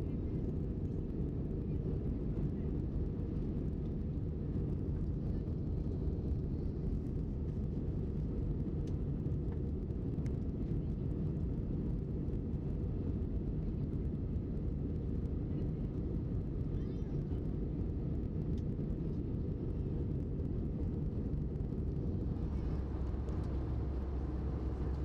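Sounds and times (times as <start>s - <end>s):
jet engine cabin drone: 18.6s - 25.0s.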